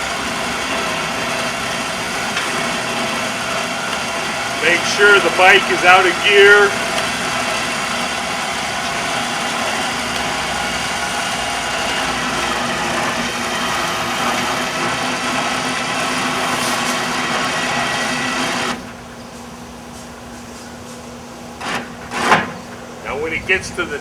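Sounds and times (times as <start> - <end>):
winch running: 0.0 - 19.1.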